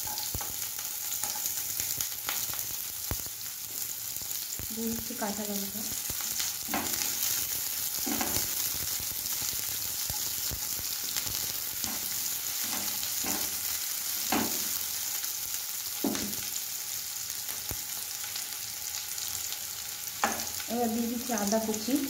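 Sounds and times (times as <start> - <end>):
onions sizzling in oil: 0.0 - 22.0
spatula scraping a pan: 8.0 - 8.7, 11.8 - 14.8.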